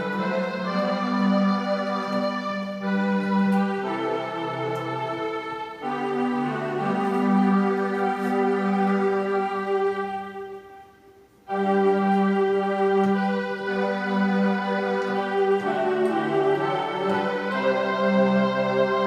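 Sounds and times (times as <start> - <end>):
electronic keyboard playing hymn chords: 0.0 - 19.0.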